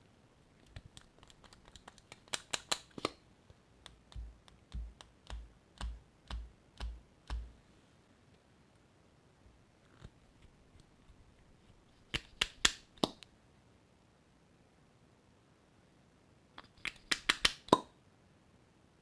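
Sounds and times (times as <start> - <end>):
sharp clicks and taps: 0.6 - 3.2, 3.8 - 7.6, 12.1 - 13.3, 16.6 - 17.9
soft thuds with clicks: 4.1 - 7.6.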